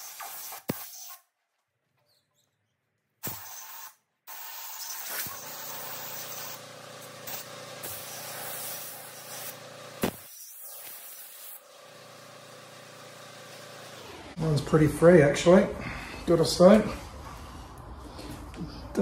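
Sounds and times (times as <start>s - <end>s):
spray-like hiss: 7.3s - 11.6s.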